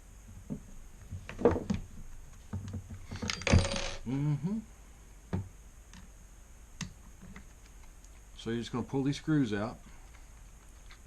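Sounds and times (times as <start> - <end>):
metal tools clinking: 3.1 - 4.0.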